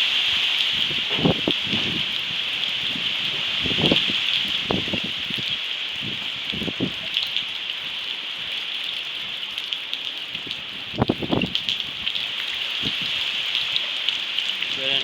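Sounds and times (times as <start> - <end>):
wind gusts on microphone: 0.0 - 7.5, 10.3 - 13.8
heavy rain pouring: 0.0 - 15.0.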